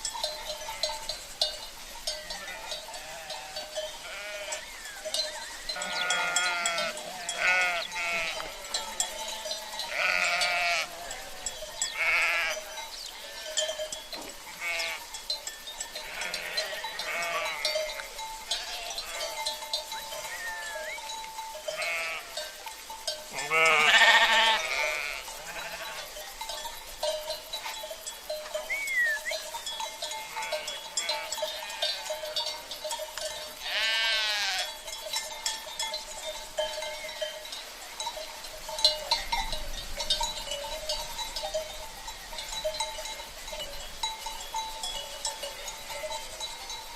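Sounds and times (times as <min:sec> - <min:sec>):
cowbells ringing: 0:00.0 - 0:46.9
sheep bleating: 0:02.4 - 0:04.6, 0:05.7 - 0:13.6, 0:14.5 - 0:15.0, 0:16.0 - 0:17.8, 0:18.5 - 0:19.4, 0:20.2 - 0:21.1, 0:21.7 - 0:22.4, 0:23.3 - 0:26.1, 0:30.2 - 0:32.1, 0:33.6 - 0:34.7.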